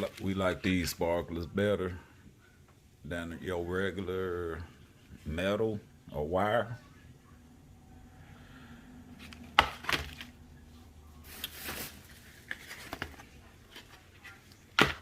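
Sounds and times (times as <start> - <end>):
packaging rustling: 9.2 - 10.4, 11.2 - 15.0.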